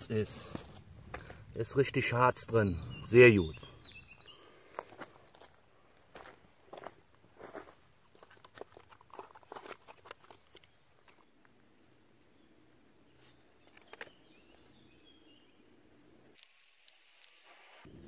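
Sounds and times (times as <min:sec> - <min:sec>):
twigs crackling and snapping: 0:08.1 - 0:11.6, 0:13.2 - 0:14.8, 0:16.3 - 0:17.5.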